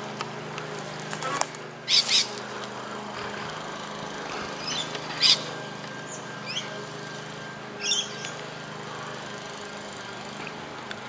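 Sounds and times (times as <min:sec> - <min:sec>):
birds chirping: 0:00.0 - 0:11.0
rising whistles: 0:04.5 - 0:08.6.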